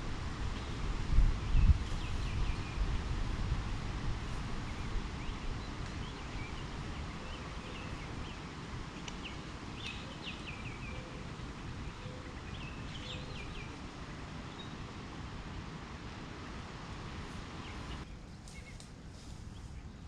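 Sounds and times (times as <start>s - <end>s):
birds chirping: 4.6s - 18.8s.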